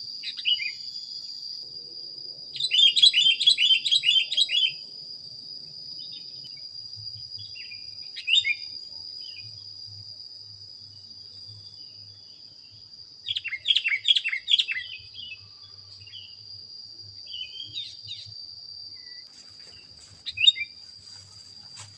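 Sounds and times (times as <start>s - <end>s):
high-pitched insect buzz: 0.0s - 21.9s
bird singing chirpy notes: 20.2s - 20.8s.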